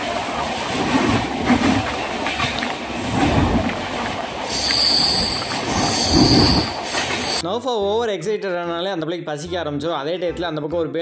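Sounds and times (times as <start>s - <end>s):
train wheels rumbling on rails: 0.0s - 7.4s
high steady squeal: 4.4s - 7.4s.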